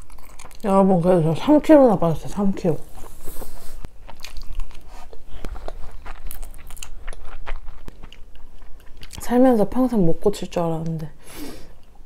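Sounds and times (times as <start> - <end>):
close chewing with wet smacks: 0.0 - 0.8, 4.0 - 9.3.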